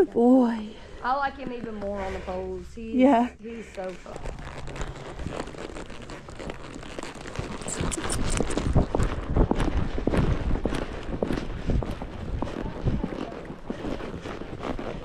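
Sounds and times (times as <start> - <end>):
horse hooves thudding: 3.7 - 15.0.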